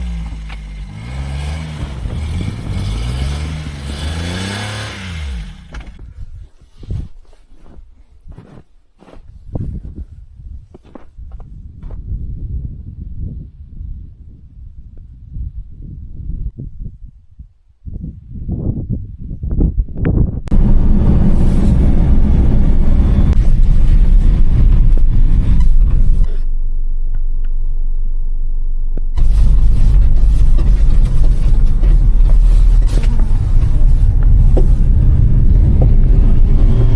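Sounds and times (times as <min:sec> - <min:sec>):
van engine revving: 0:00.0 - 0:06.0, 0:20.5 - 0:26.4, 0:29.0 - 0:36.9.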